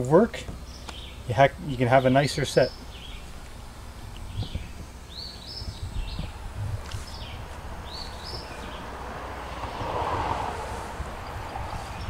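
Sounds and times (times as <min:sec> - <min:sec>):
steady low rumble: 0:00.6 - 0:12.0
small bird chirping: 0:02.6 - 0:09.0.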